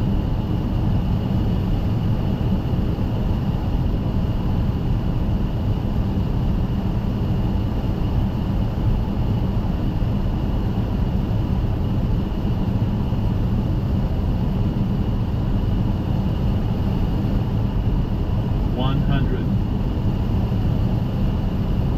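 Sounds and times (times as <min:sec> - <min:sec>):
aircraft cockpit low rumble: 0:00.0 - 0:21.9.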